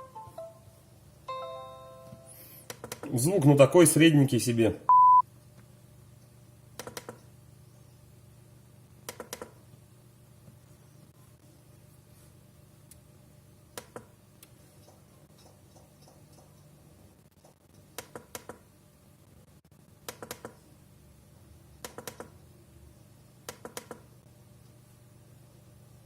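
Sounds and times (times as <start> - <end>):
faint low hum: 0.0 - 26.0
laptop clicking: 6.8 - 7.2, 9.0 - 9.6, 18.0 - 18.6, 20.0 - 20.6, 21.8 - 22.3, 23.5 - 24.1.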